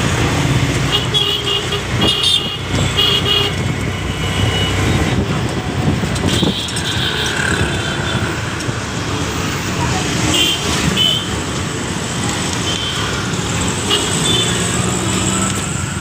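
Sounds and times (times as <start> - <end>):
loud traffic noise: 0.0 - 16.0
car horn toots: 6.2 - 8.0.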